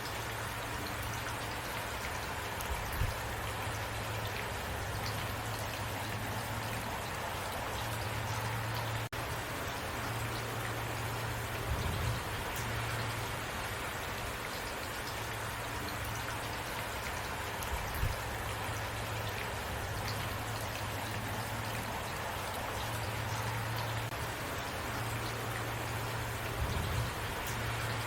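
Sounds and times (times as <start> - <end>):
heavy rain falling: 0.0 - 28.0
low steady rumble: 2.8 - 14.2, 17.6 - 28.0.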